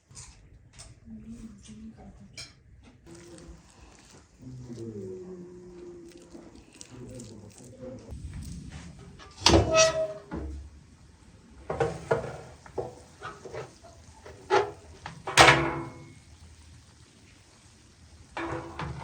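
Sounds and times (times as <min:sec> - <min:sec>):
kitchenware clinks and knocks: 0:11.7 - 0:16.2, 0:18.4 - 0:19.0.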